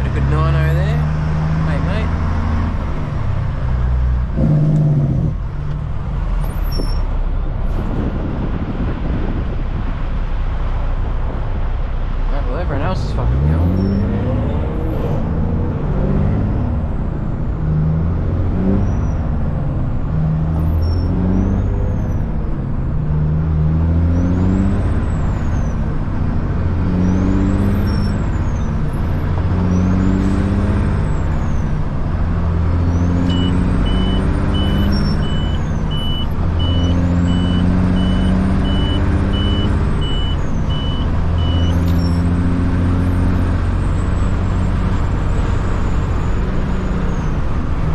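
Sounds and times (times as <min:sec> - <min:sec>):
diesel truck engine revving: 0:00.0 - 0:47.9
high beeping: 0:33.3 - 0:42.3.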